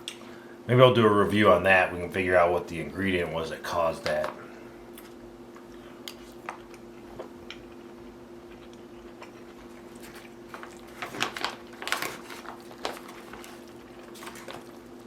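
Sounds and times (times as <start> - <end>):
steady low hum: 0.0 - 15.0
chewing food: 4.9 - 15.0.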